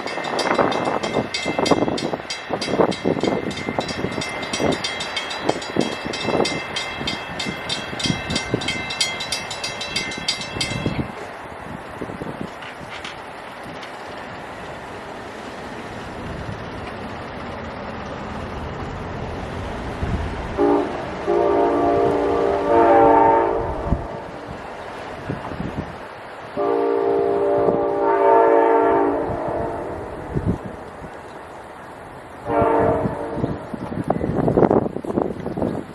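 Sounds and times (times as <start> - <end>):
fast metallic ringing: 0.0 - 11.1
train rumbling past: 0.0 - 35.9
train horn chord blasts: 20.6 - 24.5, 26.6 - 30.3, 32.4 - 33.6.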